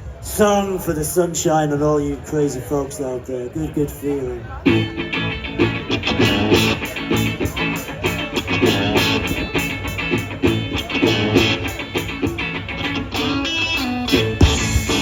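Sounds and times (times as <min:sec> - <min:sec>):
guitar strumming: 0:04.6 - 0:15.0.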